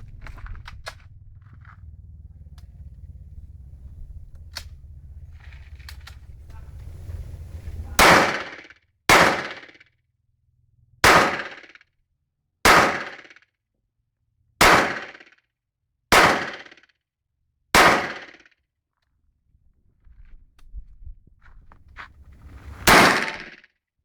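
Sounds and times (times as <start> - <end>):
pistol shots with echo: 8.0 - 9.7, 11.0 - 11.6, 12.7 - 13.3, 14.6 - 15.2, 16.1 - 16.7, 17.8 - 18.4, 22.9 - 23.6.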